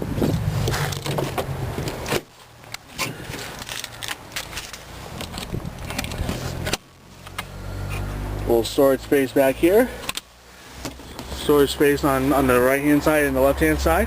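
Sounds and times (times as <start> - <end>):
clicks and rattles of handling: 0.6 - 7.5.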